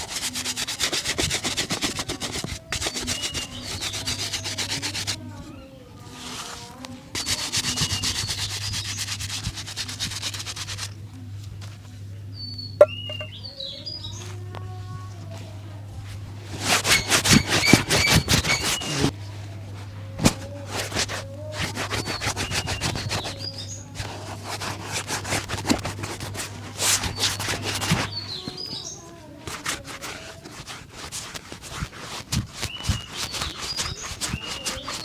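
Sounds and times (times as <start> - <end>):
shoe-shine brush strokes: 0.0 - 5.2, 6.0 - 11.0, 20.4 - 35.0
low steady hum: 4.2 - 28.0
birds chirping: 12.4 - 14.3.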